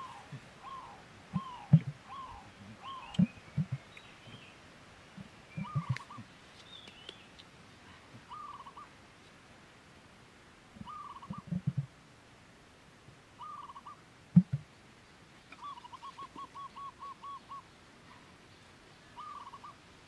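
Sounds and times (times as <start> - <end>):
fainter higher bird calls: 0.0 - 4.5, 5.5 - 9.0, 10.8 - 11.6, 13.4 - 14.0, 15.5 - 18.4, 19.0 - 19.8
quavering bird call: 0.0 - 4.5, 5.5 - 7.2, 8.3 - 8.9, 10.8 - 11.6, 13.4 - 14.0, 15.5 - 18.3, 19.1 - 19.8.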